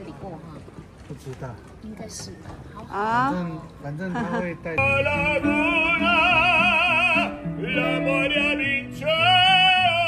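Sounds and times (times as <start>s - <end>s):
instrumental accompaniment: 4.8s - 10.0s
operatic singing with vibrato: 4.8s - 10.0s.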